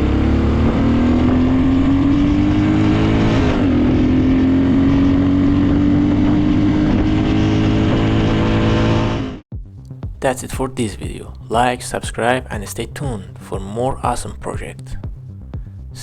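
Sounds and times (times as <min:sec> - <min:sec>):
motorcycle engine idling: 0:09.5 - 0:16.0.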